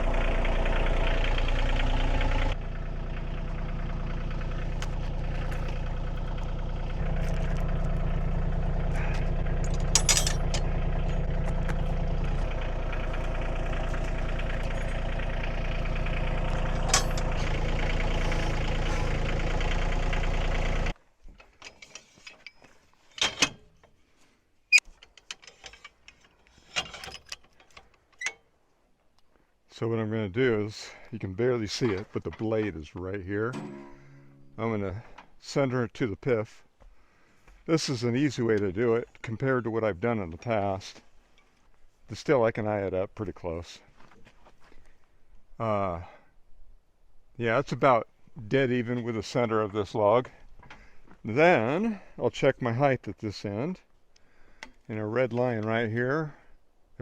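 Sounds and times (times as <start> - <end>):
engine running: 0.0 - 21.0, 33.4 - 35.6.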